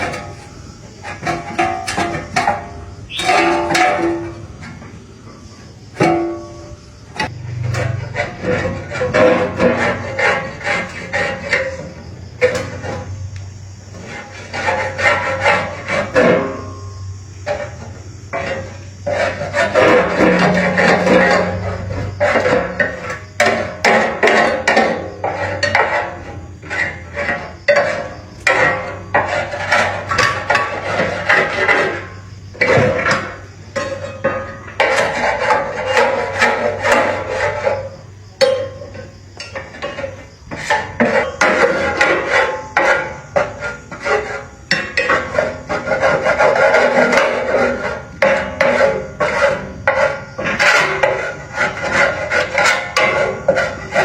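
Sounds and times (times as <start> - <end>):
tool rasping on hard surface: 7.9 - 11.9, 13.9 - 16.6, 17.5 - 33.2, 33.8 - 38.0, 39.1 - 54.0.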